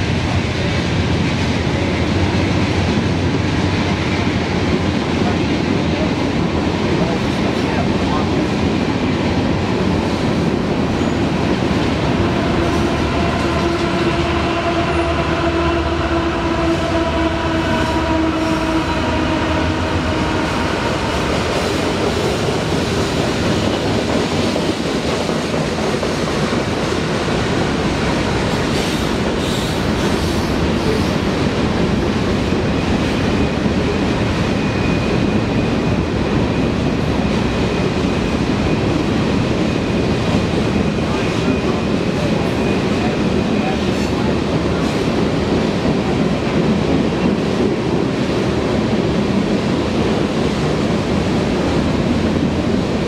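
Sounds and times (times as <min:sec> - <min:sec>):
freight train rumble and clatter: 0:00.0 - 0:53.0
train wheel squeal: 0:10.9 - 0:11.4, 0:28.6 - 0:31.2, 0:32.6 - 0:40.1, 0:40.7 - 0:44.2.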